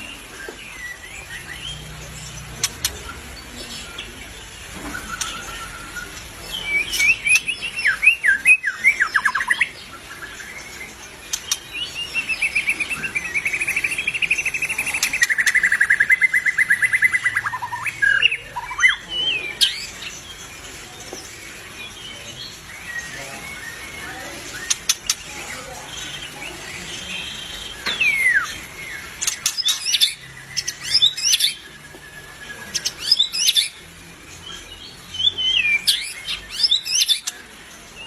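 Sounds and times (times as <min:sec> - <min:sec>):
bird whistling song: 0:04.8 - 0:19.9, 0:27.0 - 0:33.8, 0:34.5 - 0:37.4.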